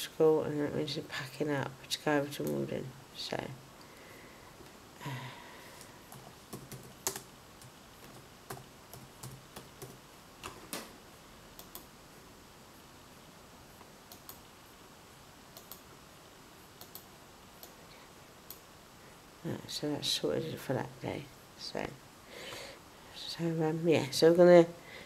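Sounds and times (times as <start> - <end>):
computer keyboard typing: 6.1 - 10.9.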